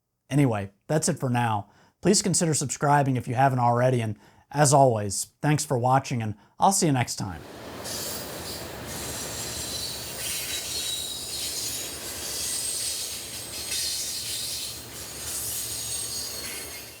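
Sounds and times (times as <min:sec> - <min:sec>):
train rumbling on rails: 0:07.4 - 0:17.0
train wheels squealing: 0:07.6 - 0:17.0.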